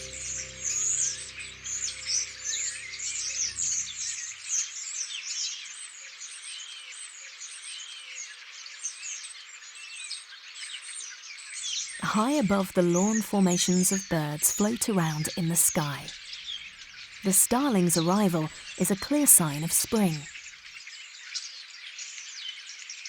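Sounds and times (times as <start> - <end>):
soft music score: 0.0 - 4.3.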